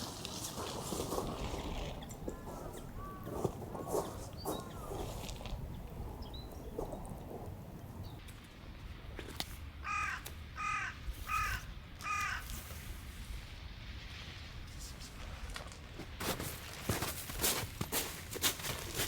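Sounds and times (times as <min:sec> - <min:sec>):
low background rumble: 0:00.0 - 0:08.2
swans honking: 0:00.0 - 0:08.2.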